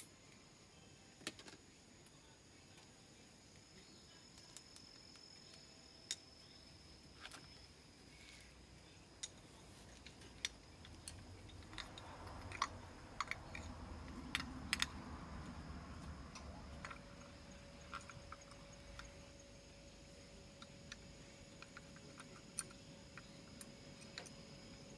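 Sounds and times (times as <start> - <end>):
faint high insect drone: 0.0 - 24.9
hand tools clinking: 9.2 - 19.2.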